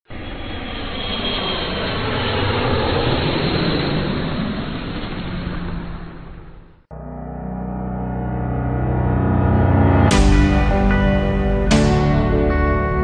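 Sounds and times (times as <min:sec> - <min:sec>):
jet aircraft passing overhead: 0:00.1 - 0:06.9.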